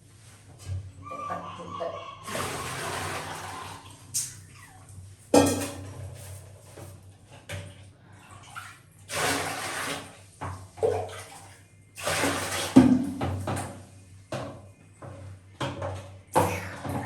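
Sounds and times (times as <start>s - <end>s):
water pouring in a basin: 2.2s - 4.8s, 8.3s - 10.2s, 10.9s - 13.2s
small knocks and clatters: 12.8s - 16.2s.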